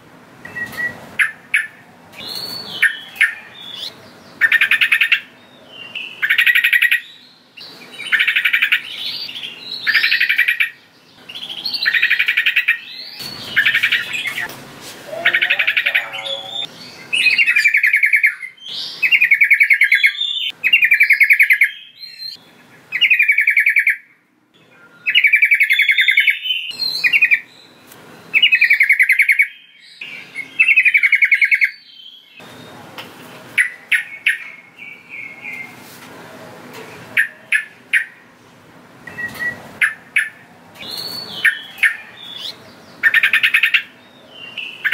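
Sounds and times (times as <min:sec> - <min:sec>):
bulbul singing bubbling phrases: 0:15.1 - 0:16.7.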